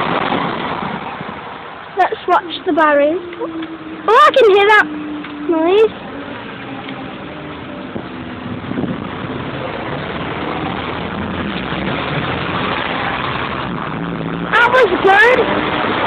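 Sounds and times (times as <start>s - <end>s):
diesel train rumbling past: 0.0s - 16.0s.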